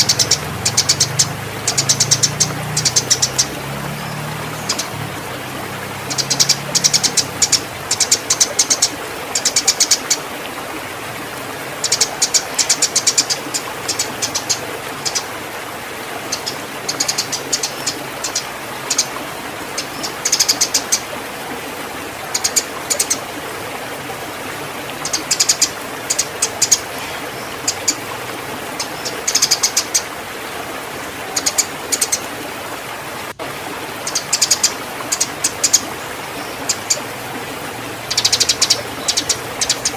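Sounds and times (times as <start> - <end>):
sparrows chirping: 0.0 - 5.0, 6.0 - 10.2, 11.8 - 15.3, 16.3 - 19.1, 25.0 - 28.0, 28.8 - 30.0, 34.1 - 35.8, 38.1 - 39.9.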